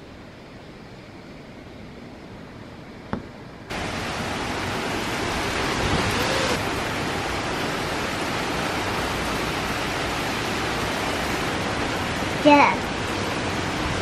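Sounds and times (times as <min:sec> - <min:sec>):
heavy rain pouring: 0:03.7 - 0:14.0.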